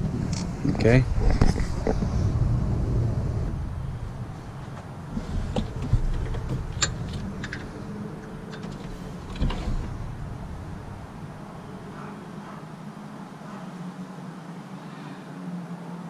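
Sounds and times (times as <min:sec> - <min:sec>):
low steady rumble: 0:00.0 - 0:13.4
metallic clicks and knocks of tools: 0:05.6 - 0:07.8.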